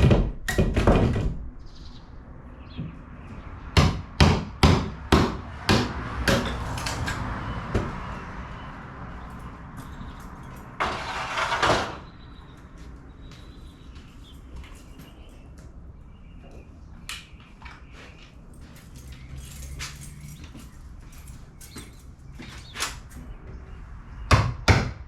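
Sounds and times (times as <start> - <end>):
harsh scrape: 10.8 - 12.1.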